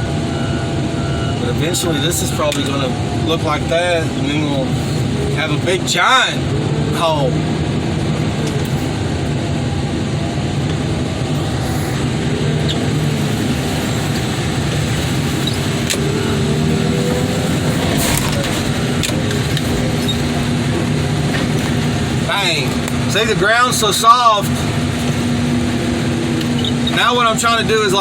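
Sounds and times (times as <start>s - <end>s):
faint whine: 0.0s - 28.0s
heavy equipment engine running: 0.0s - 28.0s.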